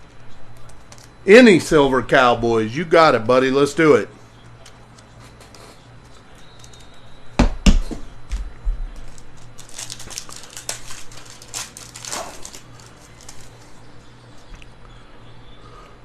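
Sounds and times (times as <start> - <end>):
wrapper tearing and crinkling: 9.0 - 13.8.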